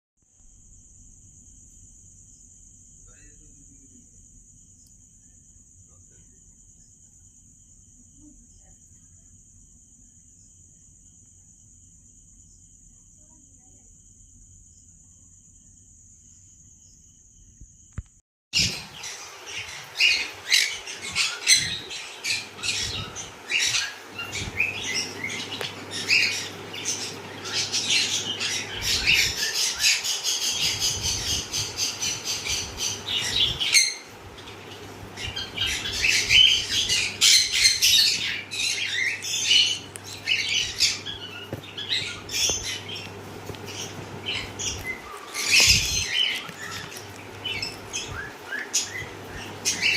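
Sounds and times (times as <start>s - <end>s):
parrots chirping and squawking: 18.6s - 49.9s.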